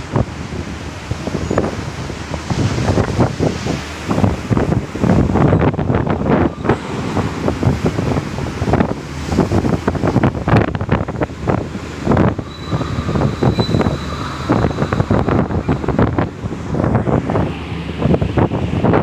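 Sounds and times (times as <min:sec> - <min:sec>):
gusty wind buffeting microphone: 0:00.0 - 0:19.0
faint thin whistling tone: 0:12.4 - 0:15.4.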